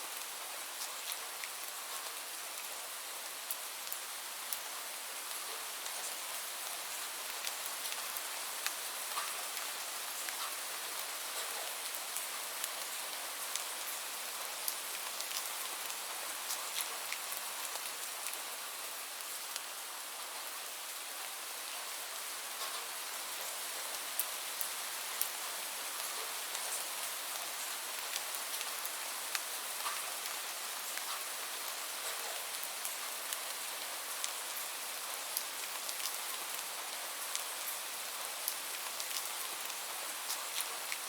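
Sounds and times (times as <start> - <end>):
steady rainfall hiss: 0.0 - 41.0
raindrops ticking on a surface: 0.1 - 41.0.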